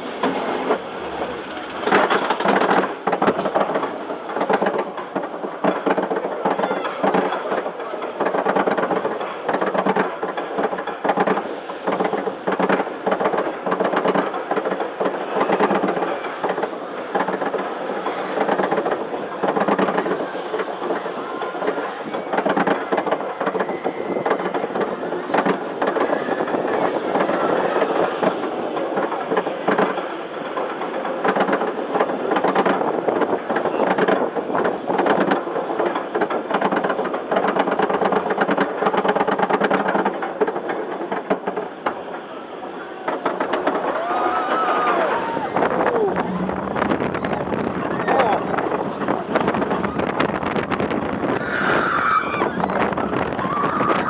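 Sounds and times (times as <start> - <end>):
roller coaster wheels rattling: 0.0 - 54.0.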